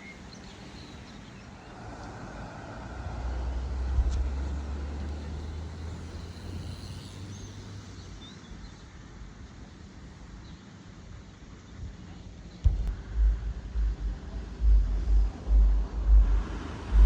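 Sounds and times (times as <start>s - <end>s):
vehicle engine drone: 1.6s - 8.7s, 12.7s - 17.0s.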